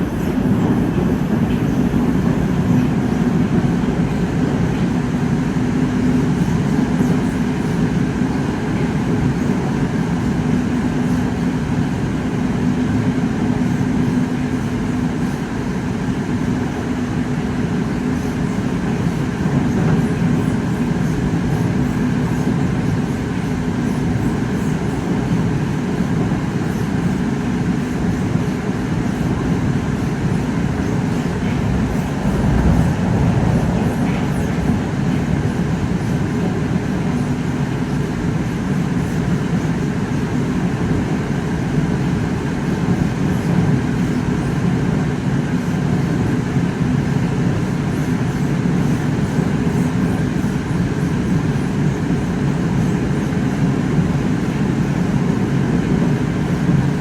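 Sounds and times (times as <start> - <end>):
constant low hum: 0.0 - 44.8
train wheels rumbling on rail: 0.0 - 57.0.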